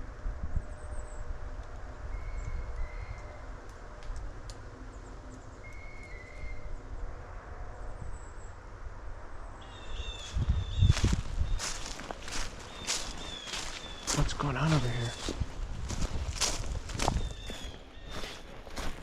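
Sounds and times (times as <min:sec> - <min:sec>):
low wind rumble: 0:00.0 - 0:19.0
whistled bird calls: 0:02.1 - 0:03.4, 0:05.6 - 0:06.7, 0:09.6 - 0:10.9, 0:12.7 - 0:14.2.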